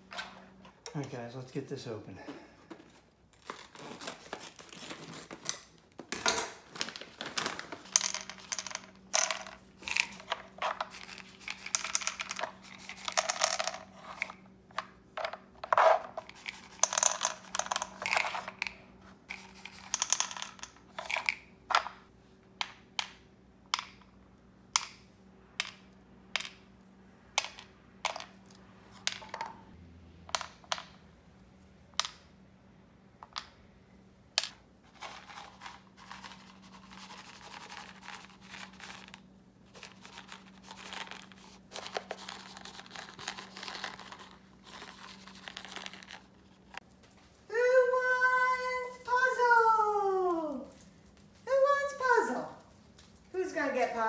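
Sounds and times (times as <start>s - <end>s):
dry kibble rattling: 34.9s - 46.5s.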